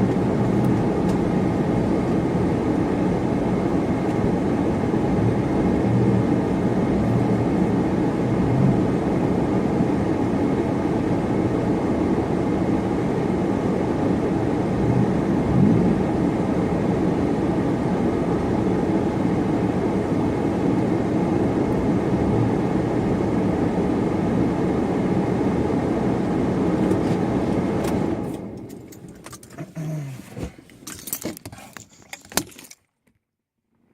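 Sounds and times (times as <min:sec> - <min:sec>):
car engine running: 0:00.0 - 0:32.6
road rumble: 0:00.0 - 0:32.8
clicks and light rattles: 0:28.6 - 0:29.6, 0:30.6 - 0:33.2.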